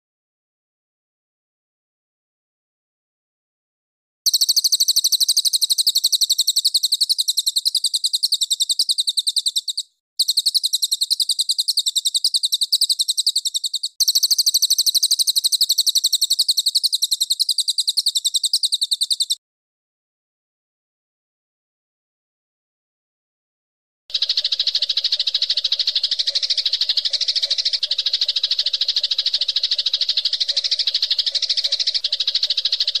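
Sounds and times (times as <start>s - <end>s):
high-pitched bird trill: 4.3s - 19.4s, 24.1s - 33.0s.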